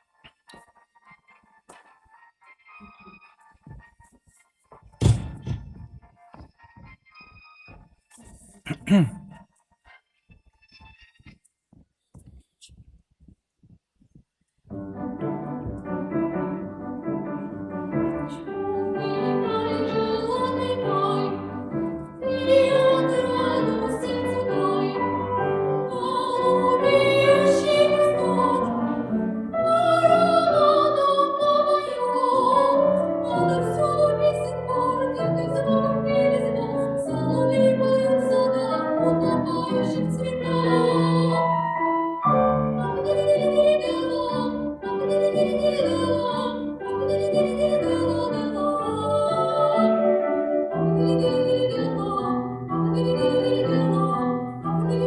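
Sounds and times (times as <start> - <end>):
piano: 14.7 - 55.0.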